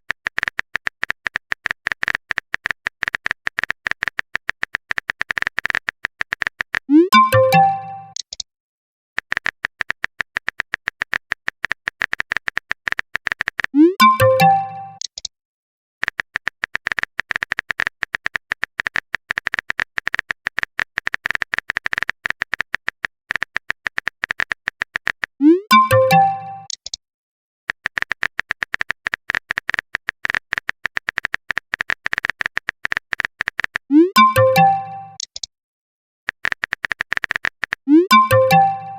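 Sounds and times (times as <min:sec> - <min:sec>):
keyboard typing clicks: 0:00.1 - 0:08.4, 0:09.2 - 0:15.3, 0:16.0 - 0:27.0, 0:27.7 - 0:35.5, 0:36.3 - 0:38.9
electronic message alert jingle: 0:06.9 - 0:08.2, 0:13.8 - 0:15.0, 0:25.4 - 0:26.7, 0:33.9 - 0:35.2, 0:37.9 - 0:38.9.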